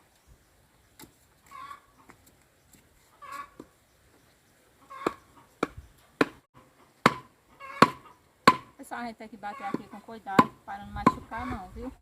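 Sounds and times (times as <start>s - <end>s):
farm animal calls: 1.5s - 2.2s, 3.1s - 3.7s, 4.8s - 5.6s, 7.5s - 8.2s, 9.4s - 10.1s
wooden stakes being knocked: 7.0s - 8.7s, 9.7s - 11.2s.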